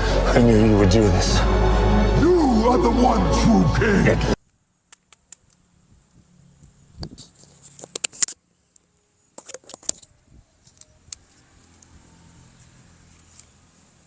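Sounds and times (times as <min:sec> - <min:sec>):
plastic parts clicking and rattling: 0:09.4 - 0:11.9.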